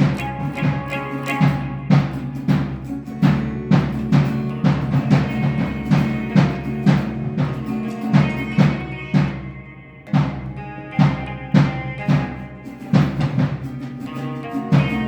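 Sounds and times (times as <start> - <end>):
percussive electric guitar strumming: 0.0 - 15.0.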